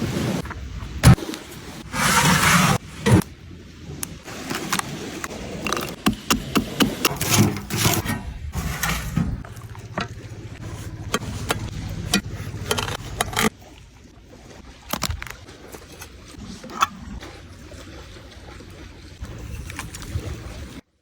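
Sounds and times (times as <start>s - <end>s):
handling clicks taps and scrapes: 4.0s - 13.8s, 14.8s - 17.2s, 19.2s - 20.3s.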